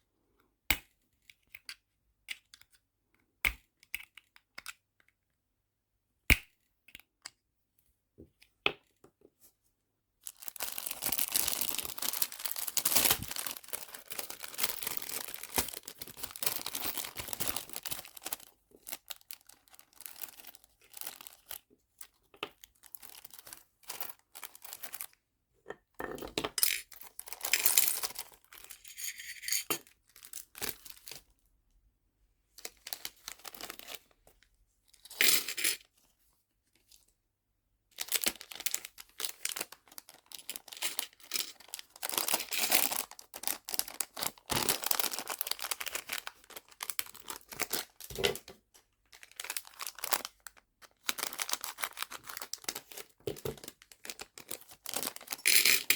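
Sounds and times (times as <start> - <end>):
plastic packaging crackling: 10.3 - 21.6, 27.0 - 28.7, 38.0 - 55.9.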